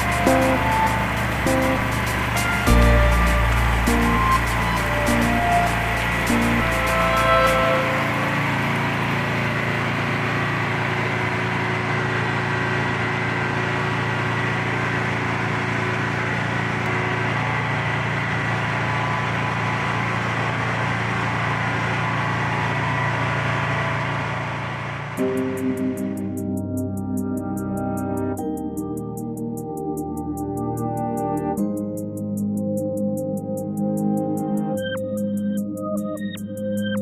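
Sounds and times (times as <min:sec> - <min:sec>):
thin high tone: 0:00.0 - 0:14.8
car engine idling: 0:00.0 - 0:26.4.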